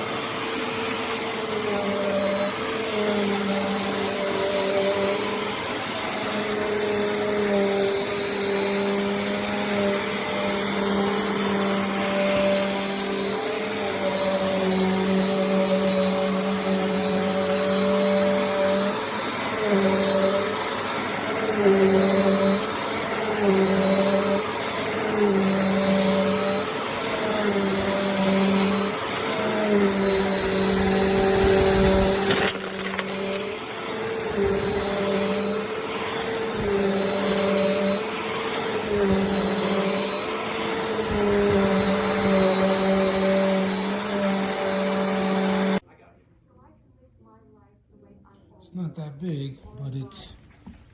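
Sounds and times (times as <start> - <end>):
vacuum cleaner running: 0.0 - 45.8.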